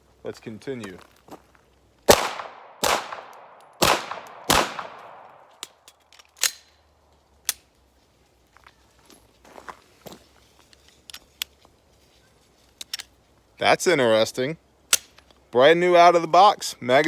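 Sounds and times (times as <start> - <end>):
pistol shots with echo: 2.1 - 5.5
pistol slide clicks: 3.3 - 6.8.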